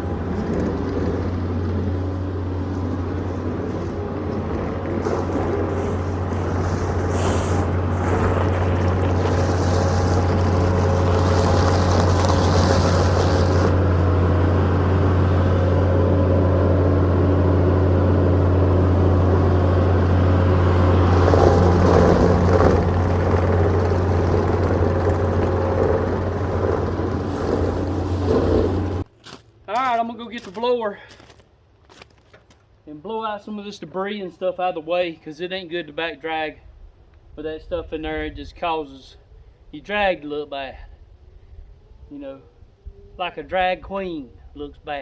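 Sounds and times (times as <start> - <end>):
backhoe engine droning: 0.0 - 29.1.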